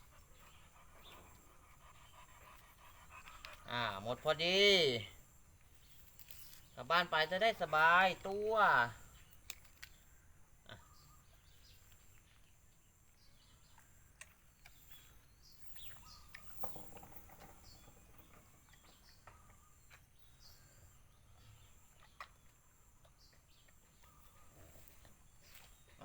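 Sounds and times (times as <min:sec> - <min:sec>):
faint bird chirps: 0:09.0 - 0:26.0.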